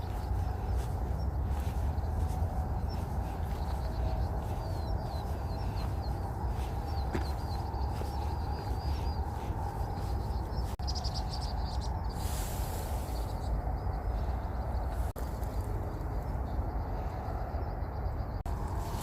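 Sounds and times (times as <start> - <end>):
low rumble: 0.0 - 19.0
small birds chirping: 0.0 - 19.0.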